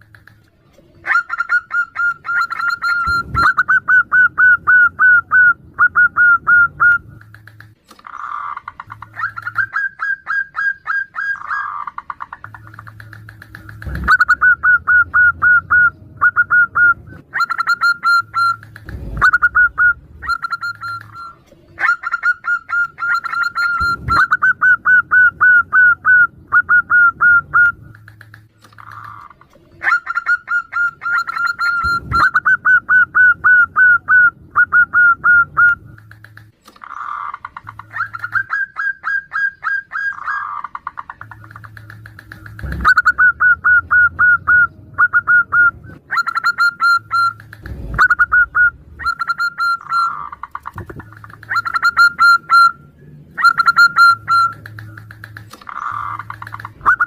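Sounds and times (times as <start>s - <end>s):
doves cooing: 0.0s - 57.0s
sharp clicks: 7.2s - 9.6s, 12.0s - 14.2s, 18.4s - 19.3s, 27.9s - 29.6s, 35.9s - 38.4s, 40.8s - 43.1s, 47.0s - 48.0s, 54.0s - 57.0s.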